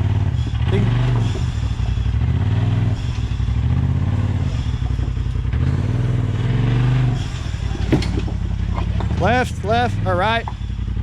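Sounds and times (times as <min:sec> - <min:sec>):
engine revving under load: 0:00.0 - 0:11.0.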